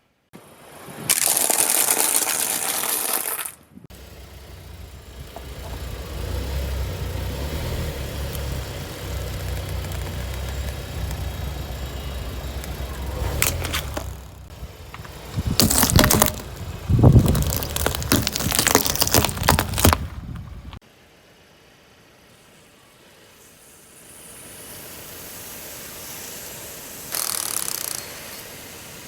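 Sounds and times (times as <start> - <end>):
car engine rumbling: 3.8 - 20.8
sharp cracks: 8.3 - 20.5
loud hiss: 20.9 - 29.0.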